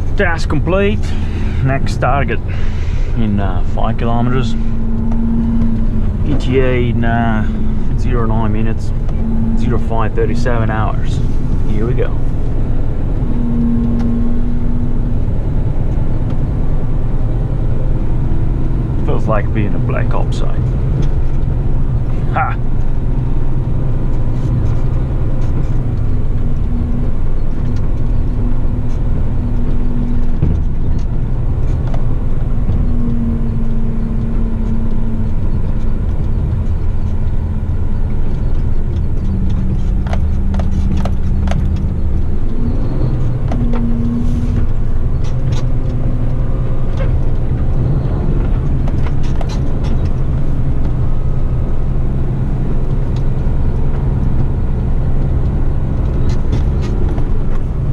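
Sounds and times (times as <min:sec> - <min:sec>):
rattles and clicks: 0:00.0 - 0:57.9
truck diesel engine running: 0:00.0 - 0:57.9.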